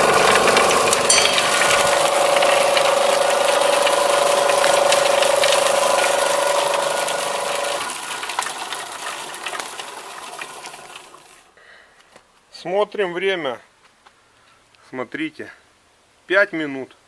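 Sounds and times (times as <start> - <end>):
electric motor humming: 0.0 - 8.5
dense crackle of crusher: 0.0 - 9.8.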